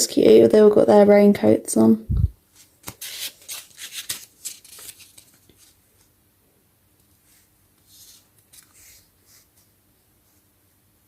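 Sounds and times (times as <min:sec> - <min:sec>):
book pages rustling: 0:02.5 - 0:06.1, 0:07.1 - 0:09.8.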